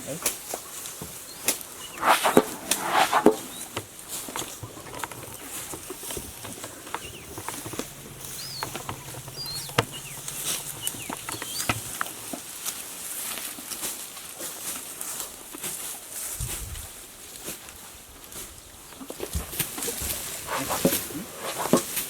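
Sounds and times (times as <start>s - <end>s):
rustling: 1.8s - 12.2s
low steady hum: 6.7s - 12.1s
bird chirps: 6.8s - 12.1s.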